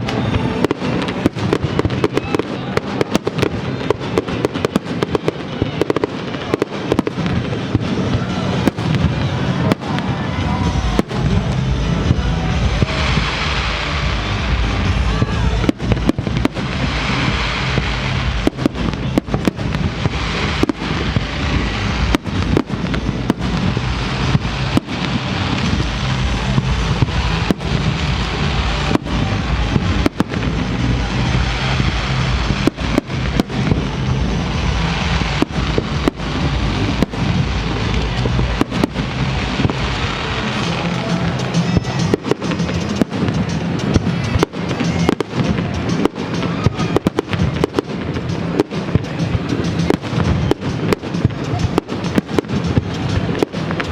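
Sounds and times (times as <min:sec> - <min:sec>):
fireworks bangs and crackles: 0:00.0 - 0:53.9
music playing: 0:00.0 - 0:53.9.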